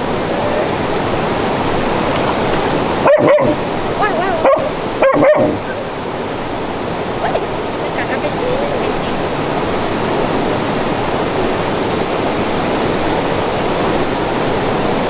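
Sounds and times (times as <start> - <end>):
mountain stream rushing: 0.0 - 15.0
dog barking: 3.0 - 5.8
dog whining: 3.0 - 6.0.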